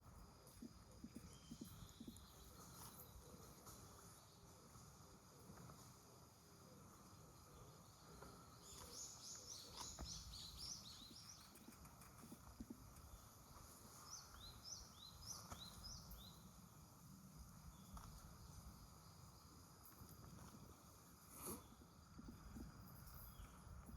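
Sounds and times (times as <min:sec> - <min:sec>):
bird chirping: 0:00.4 - 0:04.7, 0:06.8 - 0:16.6.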